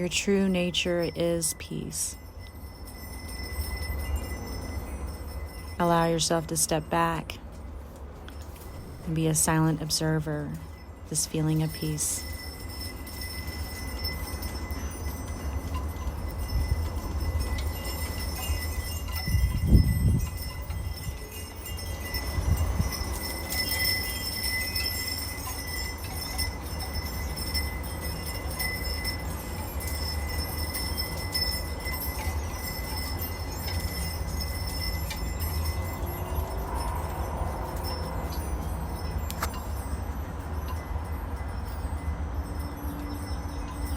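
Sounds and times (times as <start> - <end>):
steady low rumble: 0.0 - 43.9
wind chimes ringing: 0.0 - 43.9.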